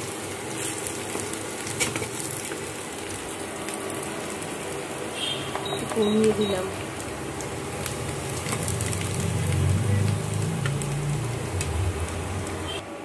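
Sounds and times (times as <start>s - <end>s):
onions sizzling in oil: 0.0s - 12.8s
low rumble: 7.0s - 12.7s.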